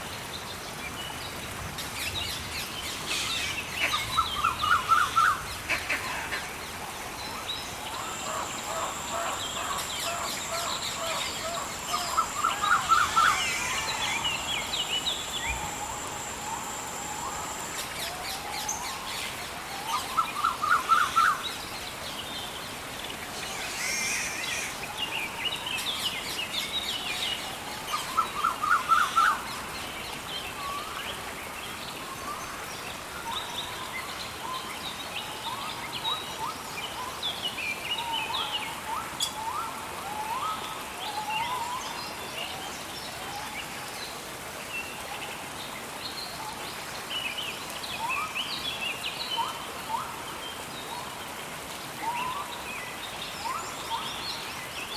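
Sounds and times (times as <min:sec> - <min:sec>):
rain hissing: 0:06.8 - 0:19.2
birds calling and chirping: 0:07.8 - 0:18.4.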